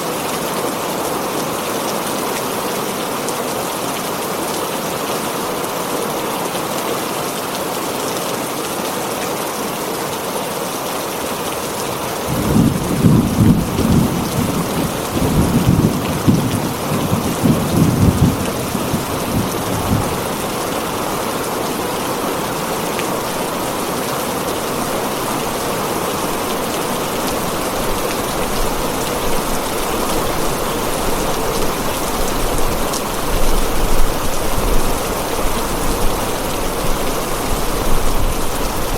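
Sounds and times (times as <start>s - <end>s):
heavy rain on a tin roof: 0.0s - 38.9s
thunder rumbling: 12.3s - 21.2s.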